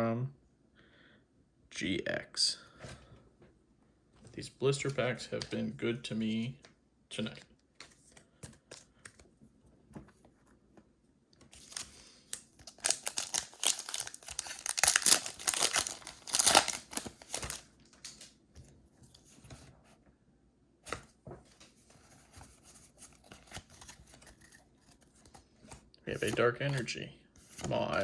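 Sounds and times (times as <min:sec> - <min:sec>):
foil wrapper tearing and crinkling: 0:11.6 - 0:18.3.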